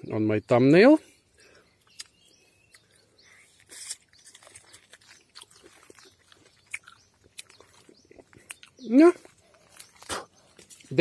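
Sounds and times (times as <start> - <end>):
person chewing fruit: 1.5 - 11.0.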